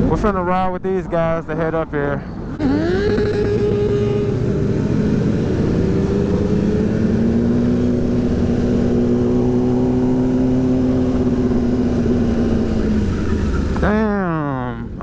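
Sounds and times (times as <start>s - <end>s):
wind and road noise: 0.0s - 15.0s
motorcycle engine running: 2.6s - 14.0s.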